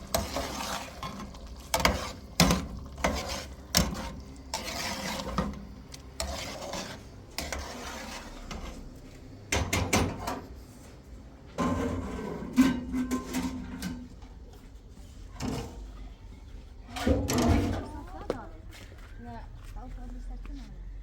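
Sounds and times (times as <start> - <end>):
utensil scraping pot: 0.0 - 9.0, 11.6 - 14.0.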